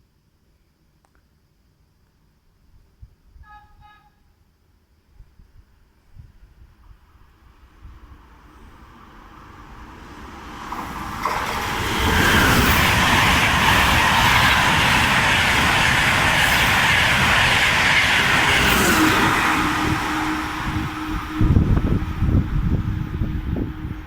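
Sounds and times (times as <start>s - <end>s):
train rushing on rails: 6.4s - 24.0s.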